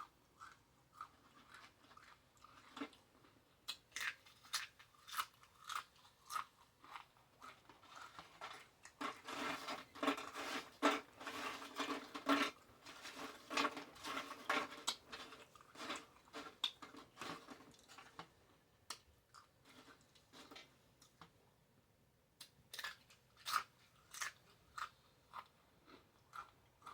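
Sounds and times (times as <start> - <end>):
close chewing with crunches: 0.0 - 18.3, 22.4 - 26.9.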